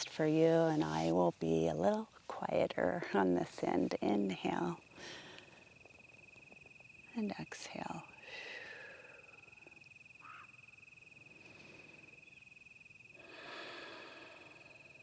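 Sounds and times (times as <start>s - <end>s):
cricket chirping: 0.0s - 15.0s
soft breaths: 4.8s - 6.1s, 7.6s - 9.8s, 11.2s - 12.2s, 13.1s - 15.0s.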